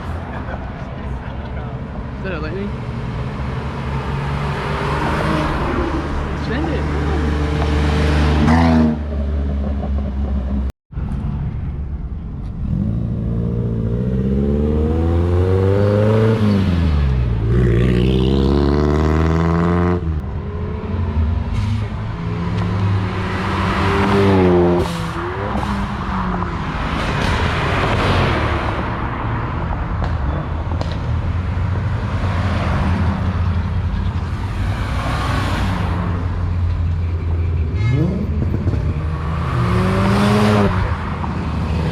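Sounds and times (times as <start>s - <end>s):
cars accelerating hard: 2.7s - 10.3s, 12.6s - 29.5s, 37.8s - 41.9s.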